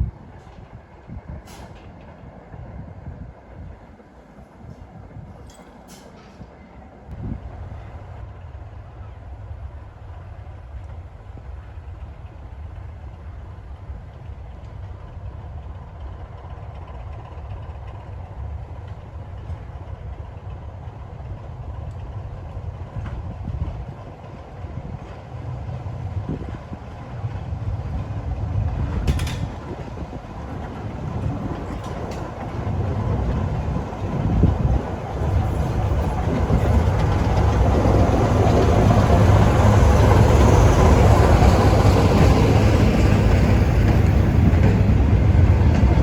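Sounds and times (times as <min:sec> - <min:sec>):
diesel locomotive engine rumbling: 0:00.0 - 0:46.0.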